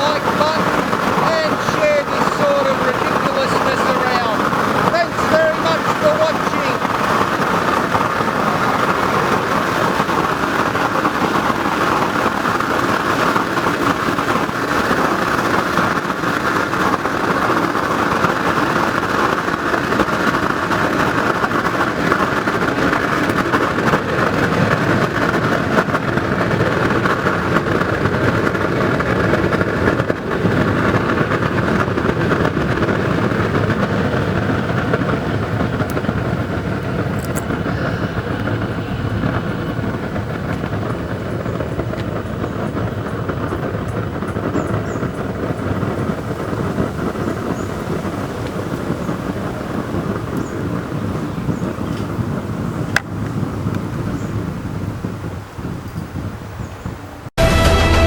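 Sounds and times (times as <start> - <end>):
oil burner roaring: 0.0 - 56.6.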